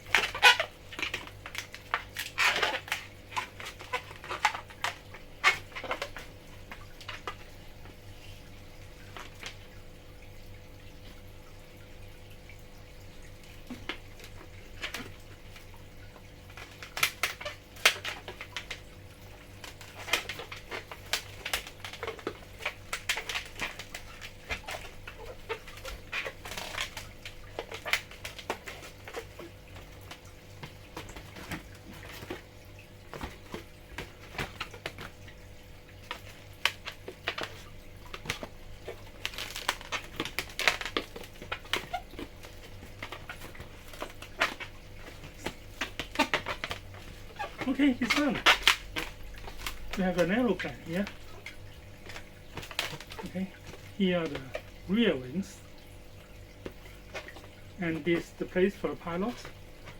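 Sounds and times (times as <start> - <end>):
rubber balloons squeaking: 0.0 - 1.2, 2.2 - 6.2, 19.8 - 29.3, 38.2 - 51.4.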